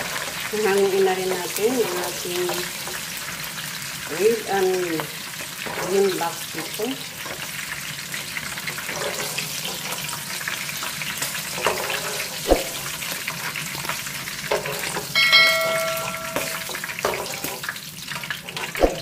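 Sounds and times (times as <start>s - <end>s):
peppers sizzling in hot oil: 0.0s - 19.0s
bell-like chime: 15.2s - 16.7s
metal spatula knocking on pan: 15.2s - 17.2s.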